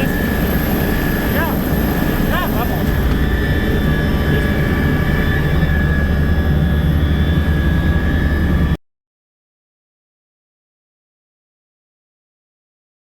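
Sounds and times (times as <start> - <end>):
helicopter running: 0.0 - 8.8.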